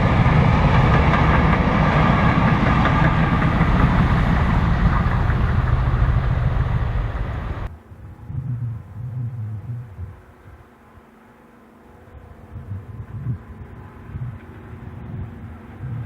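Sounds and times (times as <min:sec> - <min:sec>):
diesel locomotive engine running: 0:00.0 - 0:07.7
low throbbing: 0:00.0 - 0:10.3.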